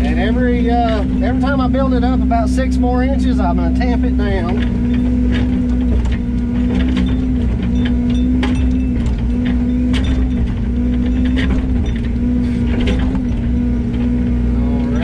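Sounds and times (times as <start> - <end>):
excavator diesel engine running: 0.0 - 15.0
excavator bucket clicks and clanks: 4.3 - 14.3.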